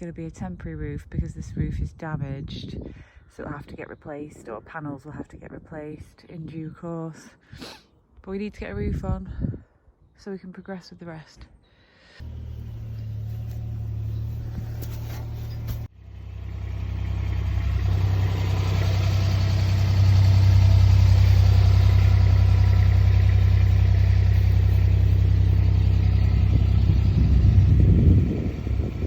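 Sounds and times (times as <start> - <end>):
engine humming: 12.2 - 29.0.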